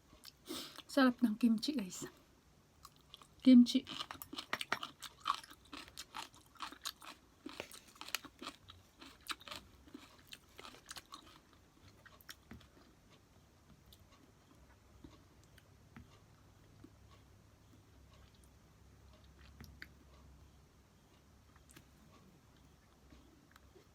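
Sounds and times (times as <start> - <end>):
person chewing crunchy food: 2.8 - 13.2.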